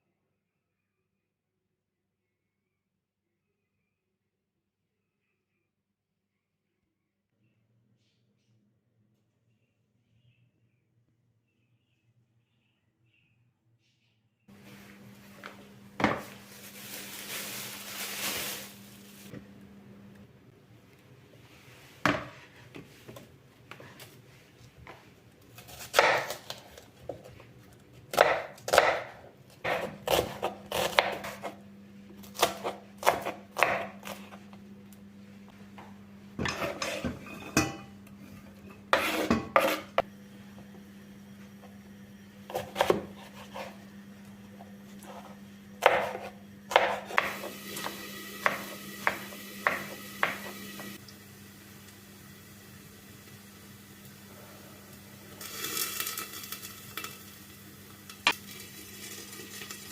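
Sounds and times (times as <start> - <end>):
steady low hum: 18.7 - 22.0
dishes and utensils clattering: 36.4 - 40.0.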